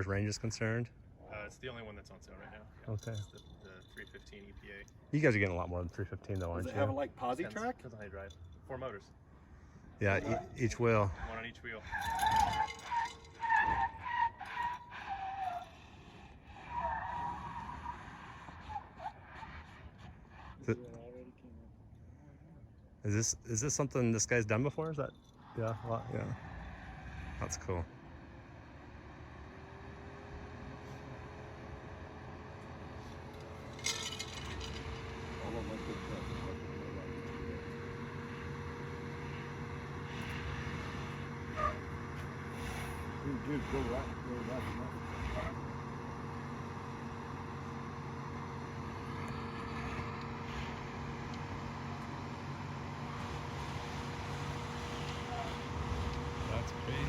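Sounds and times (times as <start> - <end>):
vehicle engine droning: 0.0 - 57.0
tyres squealing on rock: 10.0 - 20.7, 40.0 - 45.8.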